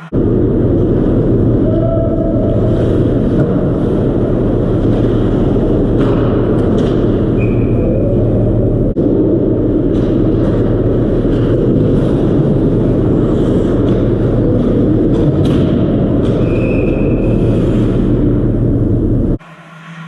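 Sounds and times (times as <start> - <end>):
game rumbling ambience: 0.0 - 20.0
high whistle tone: 7.4 - 8.5.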